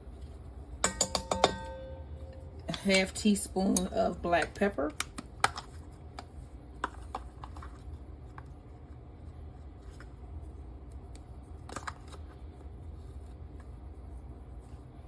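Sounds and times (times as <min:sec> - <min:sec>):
low steady hum: 0:00.0 - 0:15.0
measuring spoon clicking on containers: 0:00.8 - 0:01.9.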